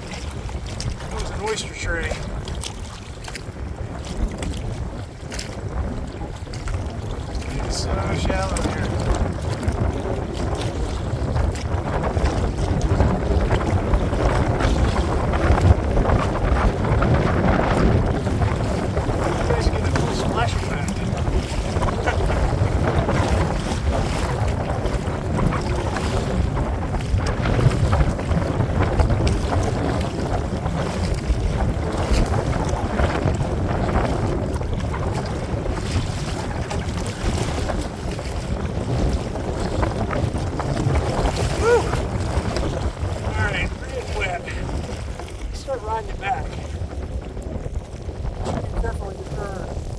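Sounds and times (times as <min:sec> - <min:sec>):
water splashing around kayak: 0:00.0 - 0:49.9
wind buffeting microphone: 0:00.0 - 0:49.9.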